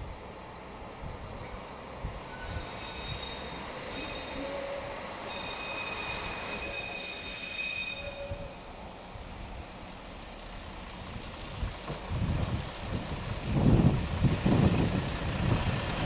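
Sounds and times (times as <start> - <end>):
railcar engine rumble: 0.0 - 16.0
train wheels squealing: 2.2 - 8.7.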